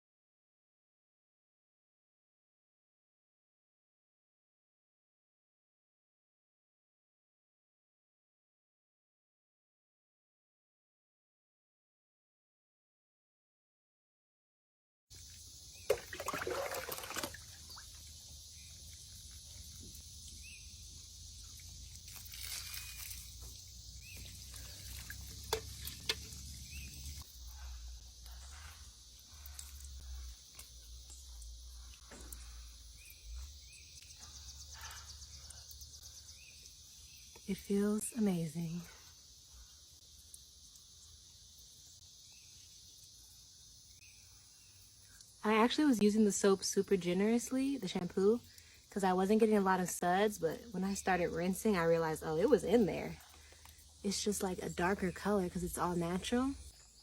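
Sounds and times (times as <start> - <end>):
high-pitched insect chorus: 15.1 - 57.0
outdoor hiss: 15.1 - 57.0
water poured over hair: 15.2 - 20.0, 21.6 - 27.2.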